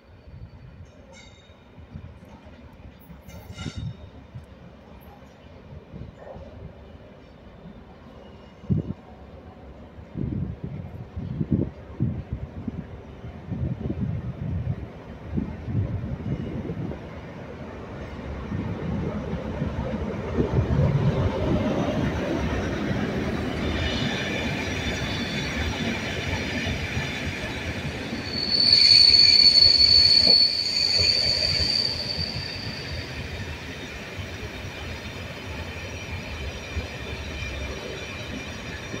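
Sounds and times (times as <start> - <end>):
diesel train rumbling past: 0.0 - 39.0
wheels squealing on rails: 3.0 - 4.4, 20.7 - 39.0.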